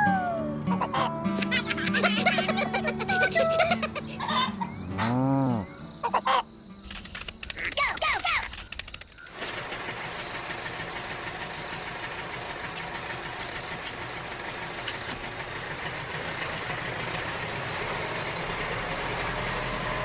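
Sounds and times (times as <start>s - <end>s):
motor droning: 9.2s - 20.0s.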